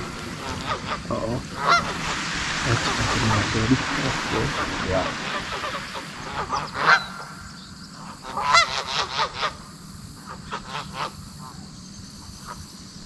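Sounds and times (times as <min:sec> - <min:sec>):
geese honking: 0:00.0 - 0:07.5.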